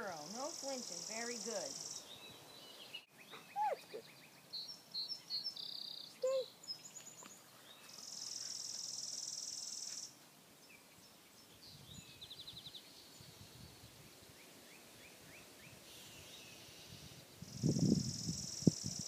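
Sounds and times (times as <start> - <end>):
bird chirps: 0.0 - 10.1.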